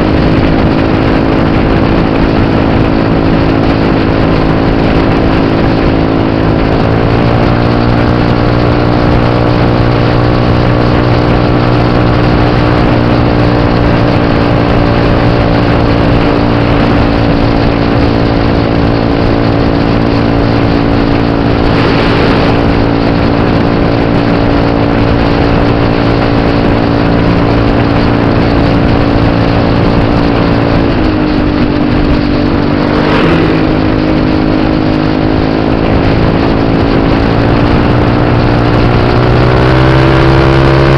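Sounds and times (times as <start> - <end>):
scooter engine running: 0.0 - 40.9
brief rushing sounds: 20.5 - 24.3.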